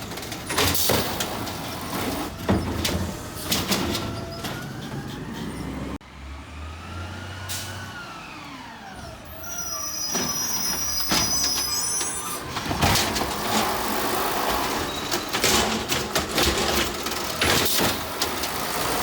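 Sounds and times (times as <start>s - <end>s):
garbage truck mechanical noise: 0.0s - 19.0s
high squeal: 9.3s - 12.5s
clanks and knocks: 12.5s - 13.8s, 14.4s - 18.7s.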